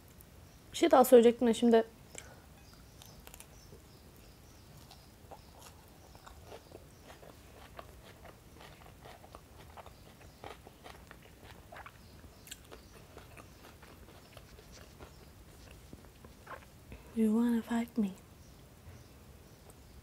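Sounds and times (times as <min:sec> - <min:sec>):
person chewing food: 0:02.7 - 0:03.6, 0:04.7 - 0:16.8.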